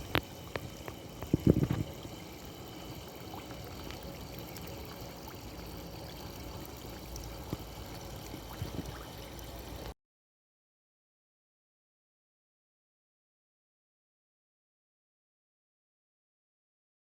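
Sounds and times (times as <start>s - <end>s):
running water: 0.0s - 10.0s.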